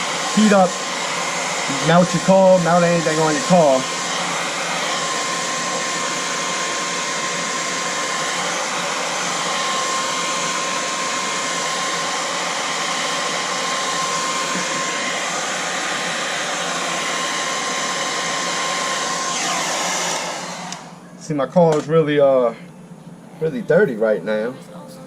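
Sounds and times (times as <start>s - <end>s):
hair dryer blowing: 0.0s - 21.1s.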